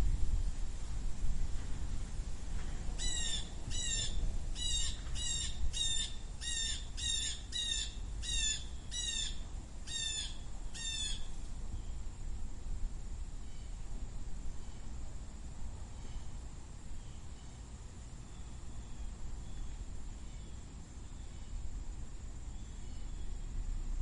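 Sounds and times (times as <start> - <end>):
low background rumble: 0.0 - 24.0
blue jay calling: 3.0 - 11.3.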